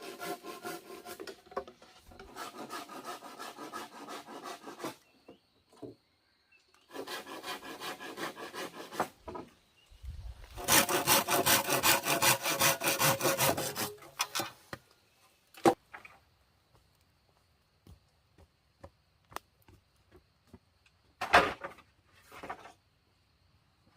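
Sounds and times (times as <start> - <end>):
hand saw sawing wood: 0.0 - 5.1, 6.8 - 9.4, 10.6 - 14.6.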